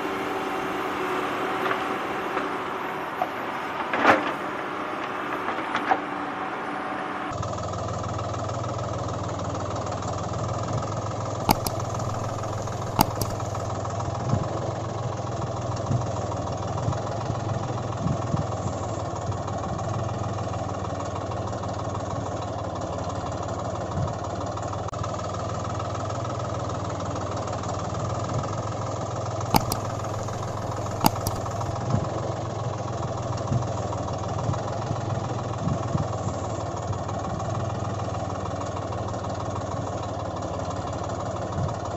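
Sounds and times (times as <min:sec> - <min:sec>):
tractor engine idling: 0:07.4 - 0:41.9
sharp clicks: 0:11.4 - 0:13.7, 0:29.5 - 0:31.8.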